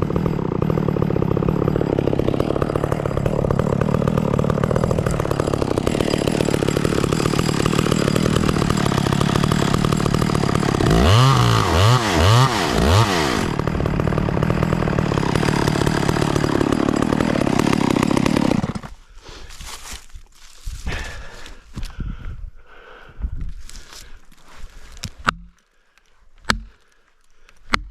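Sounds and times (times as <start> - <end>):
chainsaw running: 0.0 - 20.0.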